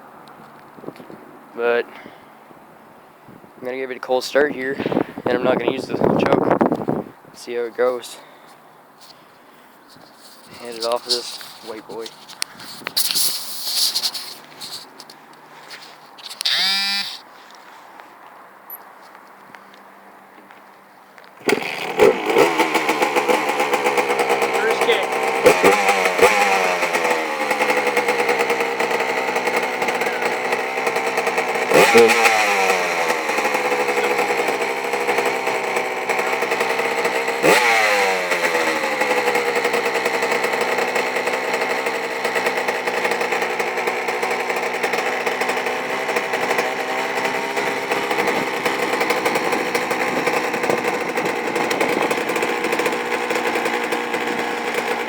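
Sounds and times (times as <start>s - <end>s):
motorcycle engine revving and idling: 16.3s - 17.2s, 21.4s - 55.0s.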